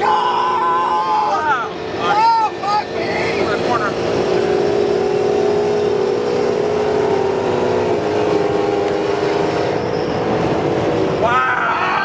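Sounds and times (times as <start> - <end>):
loud engine drone: 0.0 - 12.0
road and wind noise: 0.0 - 12.0.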